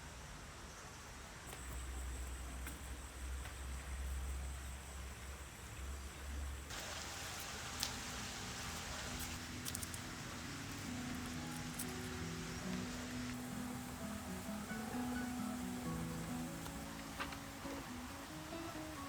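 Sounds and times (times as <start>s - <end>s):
rain hissing: 3.1s - 19.0s
soft plucked background music: 7.8s - 19.0s.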